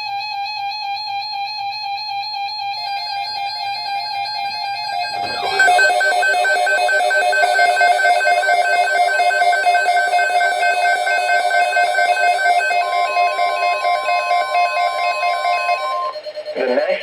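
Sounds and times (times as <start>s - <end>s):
rapid pulsing electronic beep: 5.0s - 16.8s.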